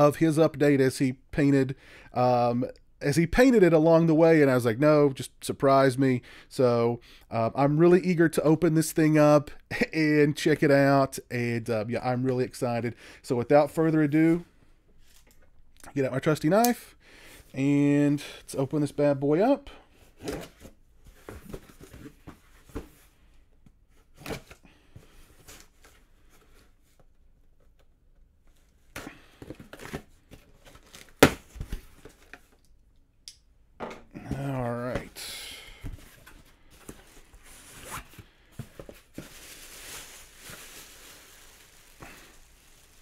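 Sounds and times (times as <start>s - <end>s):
packing material rustling: 36.1s - 43.0s.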